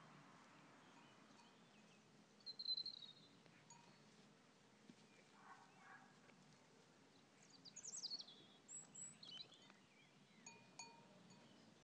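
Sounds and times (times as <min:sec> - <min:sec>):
outdoor background hiss: 0:00.0 - 0:11.8
birds chirping and whistling: 0:02.4 - 0:03.3, 0:07.6 - 0:10.6.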